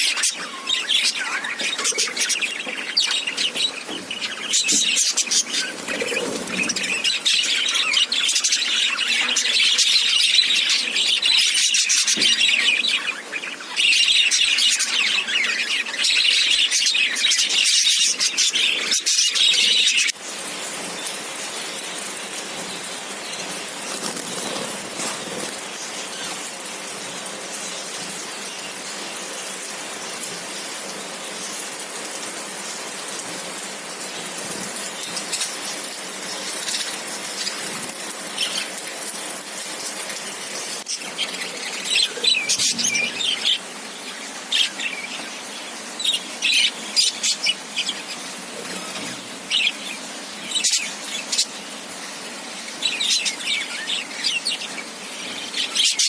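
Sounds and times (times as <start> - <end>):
budgerigars chirping: 0.0 - 20.2, 40.8 - 51.6.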